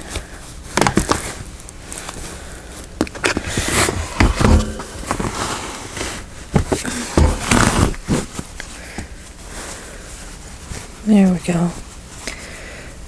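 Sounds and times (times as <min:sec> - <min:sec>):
fabric scraps rustling: 0:03.3 - 0:08.6
heavy thumps: 0:03.4 - 0:08.2.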